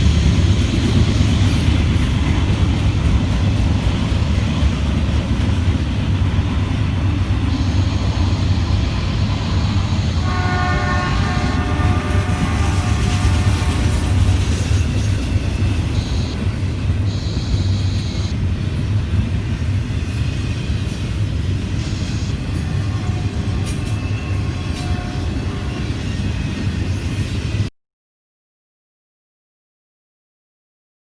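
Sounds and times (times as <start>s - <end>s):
train rumbling on rails: 0.0s - 27.7s
high wheel squeals: 6.7s - 18.4s, 20.4s - 26.3s.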